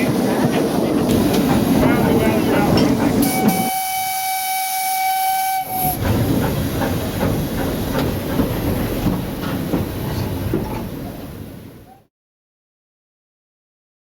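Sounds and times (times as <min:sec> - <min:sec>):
steam locomotive hissing and running: 0:00.0 - 0:12.0
steam whistle blast: 0:03.2 - 0:06.0.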